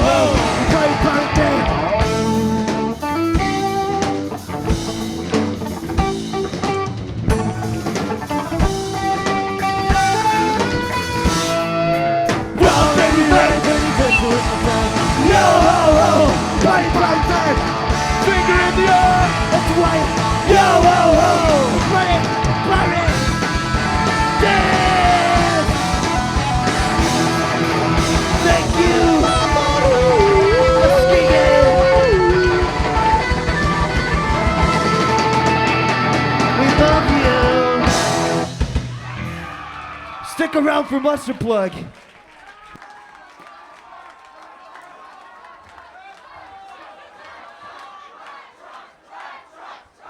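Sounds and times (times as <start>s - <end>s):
drum kit beat: 0.0s - 11.7s, 12.3s - 39.2s
electric guitar notes: 0.0s - 39.3s
rock band playing: 0.0s - 40.2s
bass guitar: 0.0s - 40.3s.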